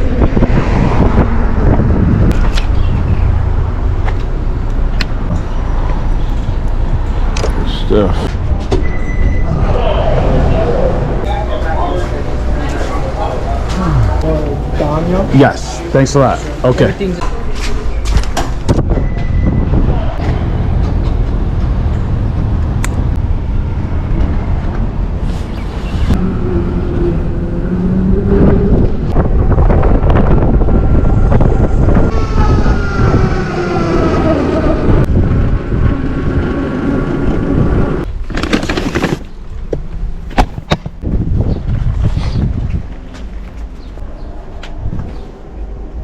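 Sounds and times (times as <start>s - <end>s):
wind buffeting microphone: 0.0s - 17.2s, 17.9s - 38.2s, 39.4s - 46.0s
loud rush of noise: 8.4s - 16.7s.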